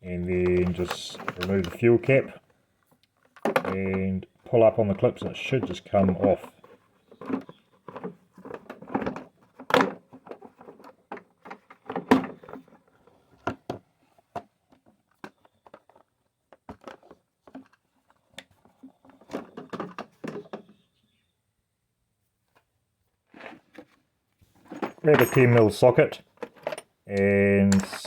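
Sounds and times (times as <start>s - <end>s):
plastic clicks and rattles: 0.4s - 4.0s, 5.0s - 20.8s.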